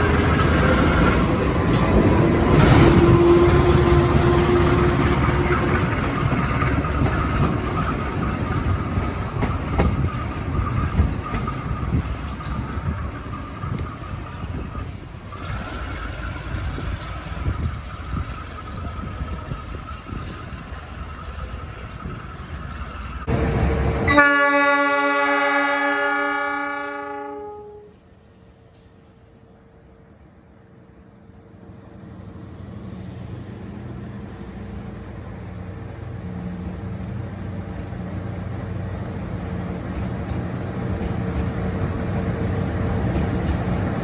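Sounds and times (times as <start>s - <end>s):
train wheels clattering on rails: 0.0s - 24.4s, 34.8s - 44.0s
locomotive horn chord: 24.1s - 28.0s.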